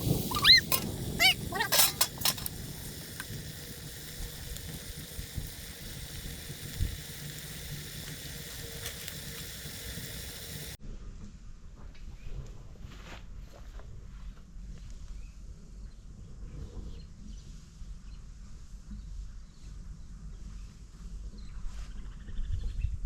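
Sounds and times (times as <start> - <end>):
rising and falling call: 0.0 - 1.7
food sizzling in a pot: 0.0 - 10.8.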